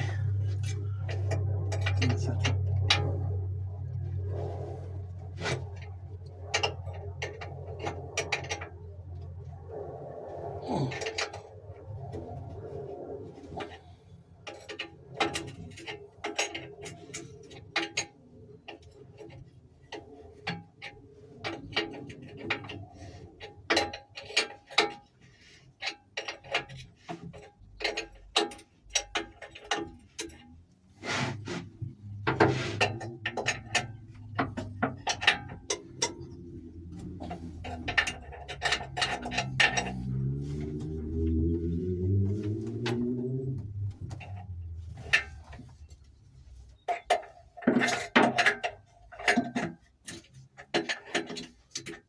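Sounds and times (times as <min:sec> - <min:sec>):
low hum: 0:00.0 - 0:14.5, 0:31.5 - 0:46.5
hand tools clicking on metal: 0:32.4 - 0:41.1.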